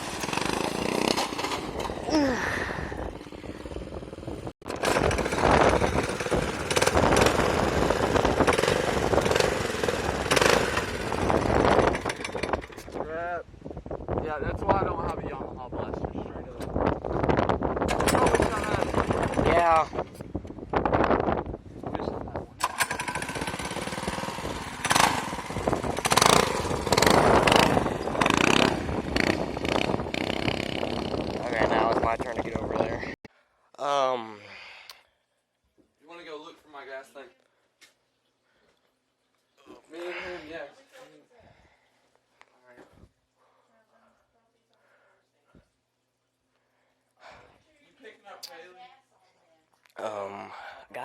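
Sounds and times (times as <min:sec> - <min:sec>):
mini bike engine buzzing: 0:00.0 - 0:12.8, 0:17.9 - 0:19.7, 0:22.6 - 0:31.8.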